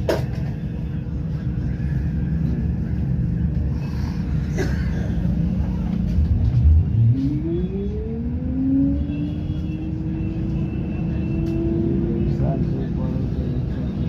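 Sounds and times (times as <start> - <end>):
vehicle engine accelerating: 5.4 - 13.5.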